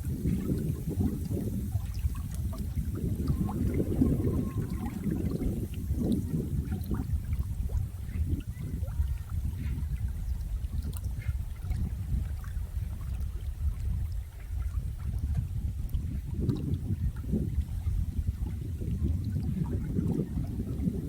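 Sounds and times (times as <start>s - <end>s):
water churning gurgle: 0.0s - 21.0s
faint droplet ticks: 10.8s - 11.8s.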